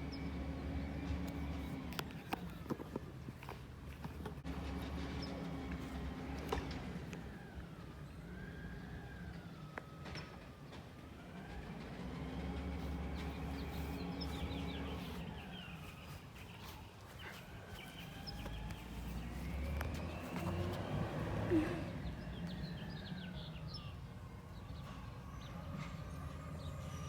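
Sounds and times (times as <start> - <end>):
truck engine revving: 0.0 - 2.3, 4.4 - 7.8, 11.3 - 23.7.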